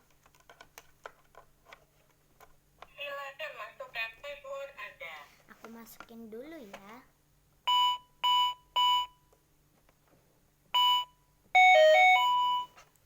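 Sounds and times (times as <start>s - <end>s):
toy keypad beeping: 10.8s - 12.7s.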